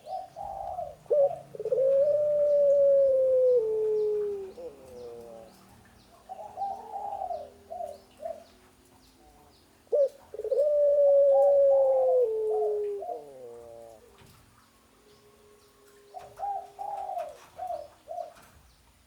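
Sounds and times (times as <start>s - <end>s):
dove cooing: 0.0s - 14.6s, 15.4s - 18.6s.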